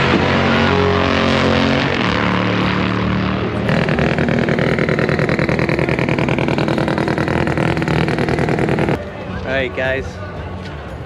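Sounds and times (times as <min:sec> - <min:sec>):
car engine running loudly: 0:00.0 - 0:11.0.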